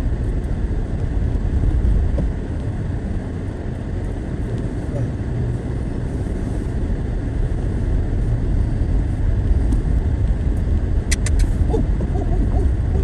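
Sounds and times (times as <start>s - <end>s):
car driving on snowy road: 0.0s - 13.0s
sharp clicks: 11.1s - 11.6s.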